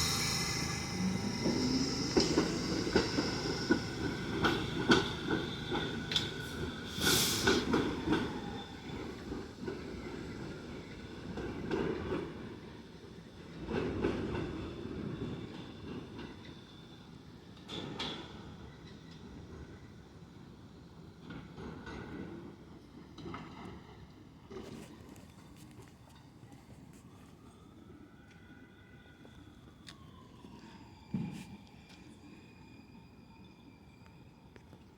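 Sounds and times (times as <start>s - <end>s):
hiss of air: 0.0s - 5.3s, 6.3s - 7.9s
subway train wheels clacking: 0.0s - 26.4s.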